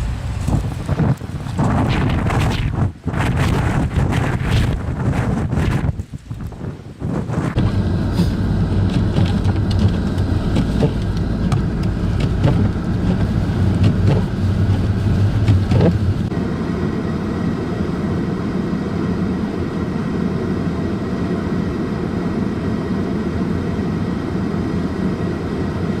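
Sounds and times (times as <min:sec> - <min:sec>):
road noise: 0:00.0 - 0:26.0
vehicle engine hum: 0:00.0 - 0:26.0
sharp ticks and knocks: 0:07.6 - 0:16.1.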